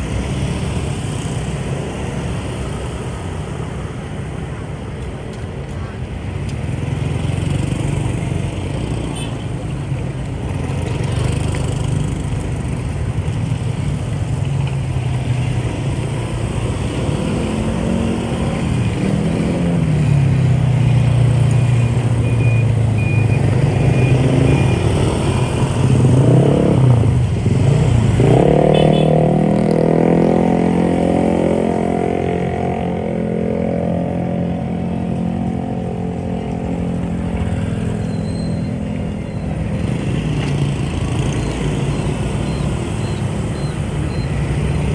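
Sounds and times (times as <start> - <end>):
motorbike traffic: 0.0 - 44.9.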